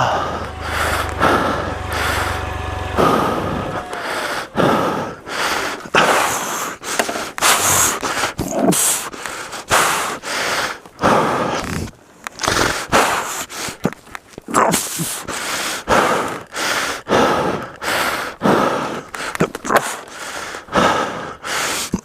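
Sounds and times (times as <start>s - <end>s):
low steady hum: 0.0s - 6.0s
man panting heavily: 4.1s - 11.6s, 14.8s - 22.0s.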